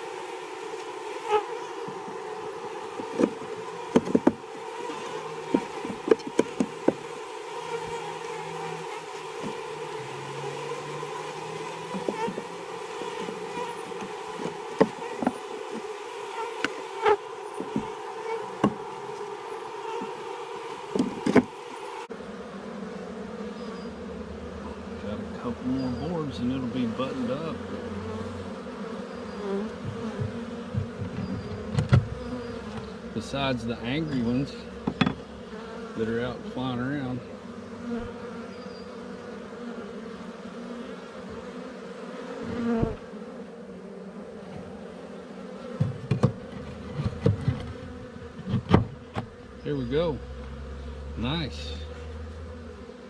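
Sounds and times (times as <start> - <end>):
honeybees buzzing: 0.0 - 53.0
sharp knocks: 3.0 - 4.4, 5.5 - 7.0, 18.6 - 18.8, 20.9 - 21.5, 34.8 - 35.2.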